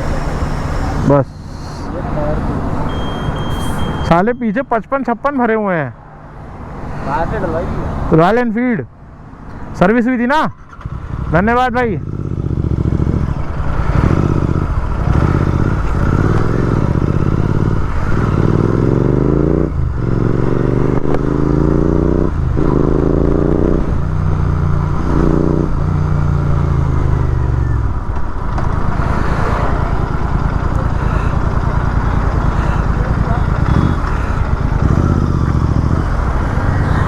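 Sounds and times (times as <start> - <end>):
motorcycle engine accelerating: 0.0 - 4.2, 10.6 - 37.0.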